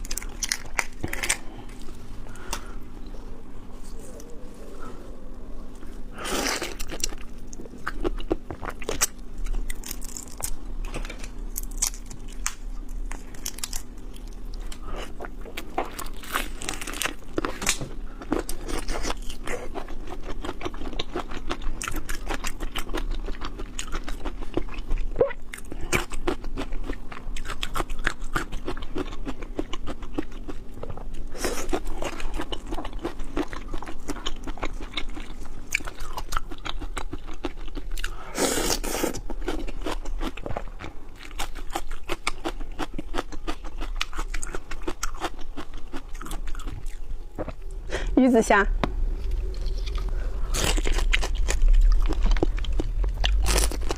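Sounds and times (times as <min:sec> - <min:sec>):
chewing and crunching: 0:00.0 - 0:04.9, 0:05.6 - 0:47.8, 0:49.0 - 0:53.9.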